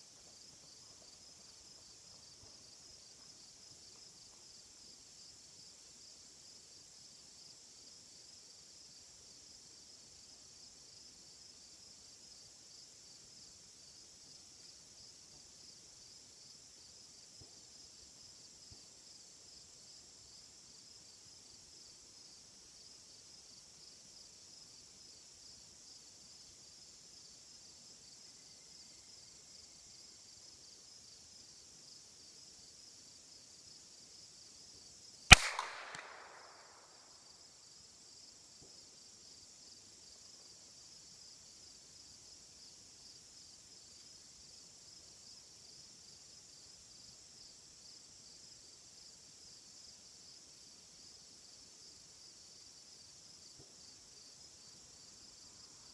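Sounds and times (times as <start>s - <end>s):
gunshot with echo: 35.3s - 36.8s.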